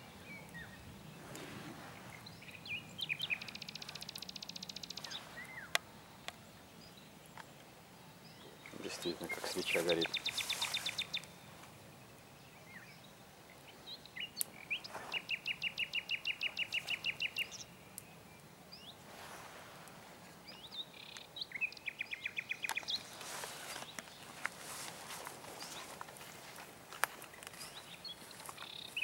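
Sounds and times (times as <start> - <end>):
songbird trilling: 2.2 - 5.8, 8.3 - 11.3, 14.0 - 17.7.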